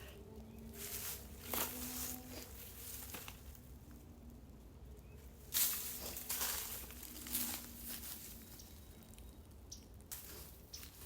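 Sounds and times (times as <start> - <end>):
rustling and scuffing: 0.7 - 3.7, 5.4 - 8.9, 10.1 - 11.0.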